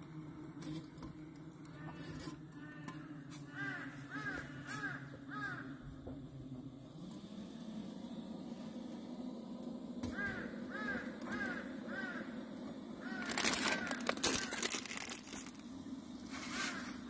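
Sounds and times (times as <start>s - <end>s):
bird short repeated calls: 13.0s - 14.8s
loud rustling crackling noise: 13.0s - 17.0s.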